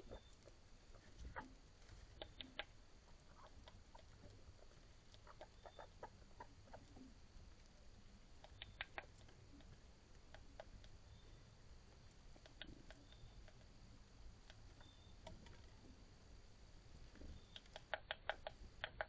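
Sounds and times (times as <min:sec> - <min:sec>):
rodents clicking and tapping: 0:01.2 - 0:04.4, 0:08.4 - 0:11.0, 0:17.2 - 0:19.0
sharp clicks: 0:02.2 - 0:02.7, 0:08.4 - 0:09.7, 0:17.4 - 0:19.0.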